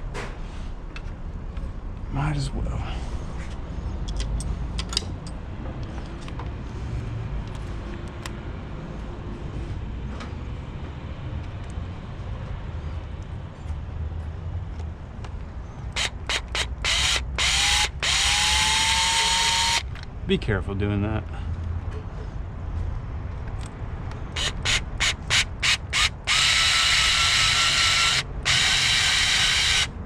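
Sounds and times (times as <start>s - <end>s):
cordless drill motor whining: 15.9s - 19.8s, 24.3s - 30.0s.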